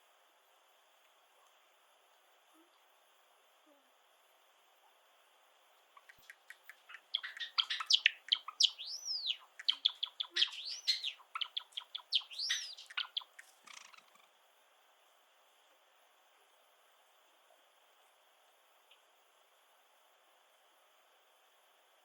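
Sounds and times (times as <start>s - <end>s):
sparrow clicking and chirping: 6.0s - 14.0s
high arched bird whistle: 7.2s - 13.2s.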